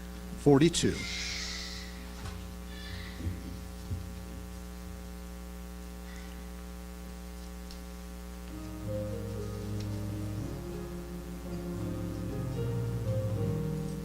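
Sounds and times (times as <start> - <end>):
electrical mains hum: 0.0 - 14.0
soft thumps: 2.2 - 4.5.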